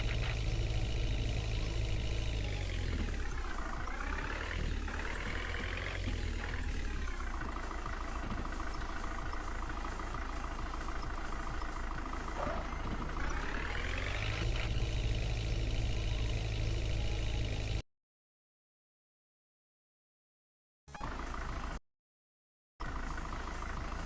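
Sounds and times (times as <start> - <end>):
tractor engine revving: 0.0 - 17.8.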